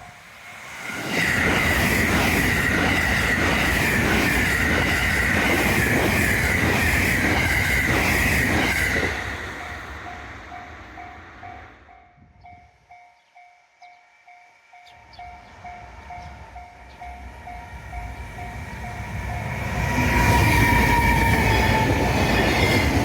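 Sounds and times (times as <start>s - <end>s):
train wheels clattering: 0.9s - 11.1s
high-pitched wheel squeal: 19.8s - 23.0s.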